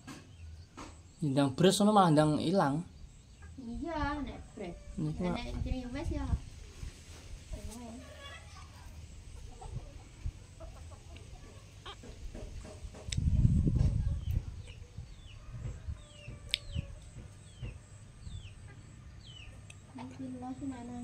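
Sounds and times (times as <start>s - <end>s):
chickens clucking: 2.2s - 5.9s, 6.5s - 21.0s.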